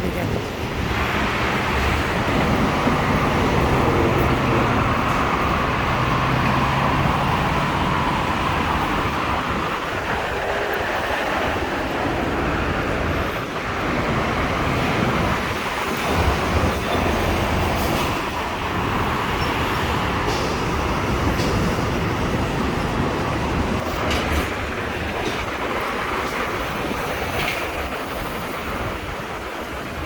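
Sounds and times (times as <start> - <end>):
constant rushing noise: 0.0 - 30.0
large vehicle engine hum: 0.0 - 30.0.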